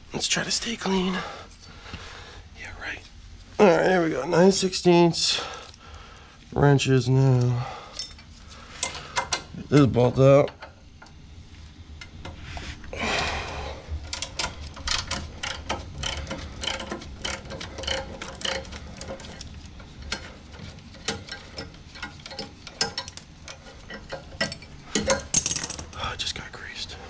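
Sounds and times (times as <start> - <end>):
wrench clicking on a bolt: 14.1 - 19.5.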